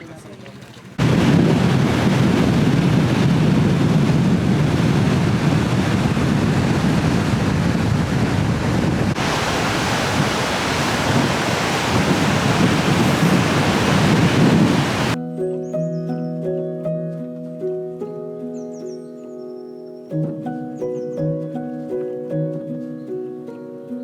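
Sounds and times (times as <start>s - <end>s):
wind buffeting microphone: 1.0s - 15.2s.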